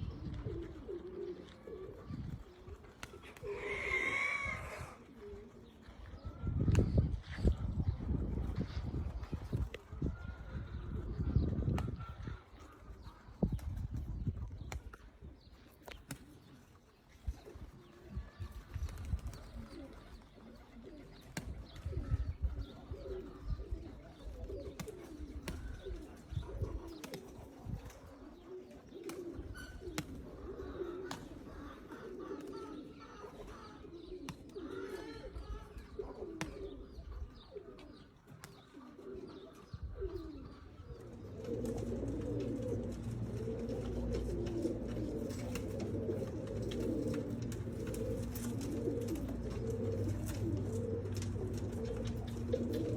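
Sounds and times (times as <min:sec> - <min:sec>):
pigeons cooing: 0:00.0 - 0:52.9.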